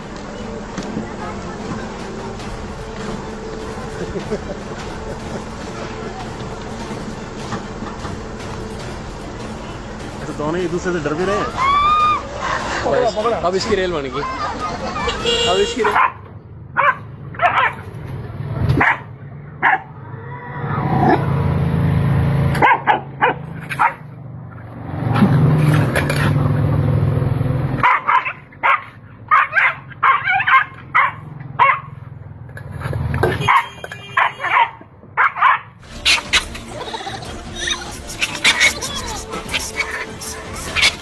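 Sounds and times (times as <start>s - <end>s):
dog barking and yipping: 15.8s - 16.2s, 16.8s - 17.8s, 18.8s - 19.9s, 22.6s - 24.0s, 27.8s - 31.9s, 33.4s - 41.0s.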